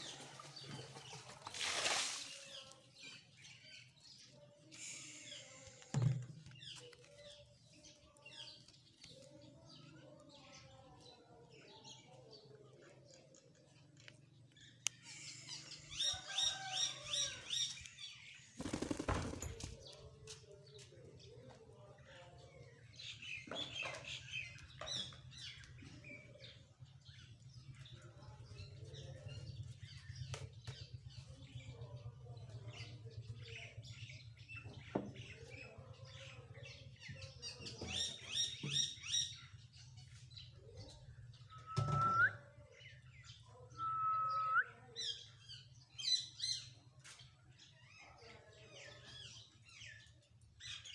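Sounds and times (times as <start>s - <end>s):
wing flapping: 18.6s - 19.7s.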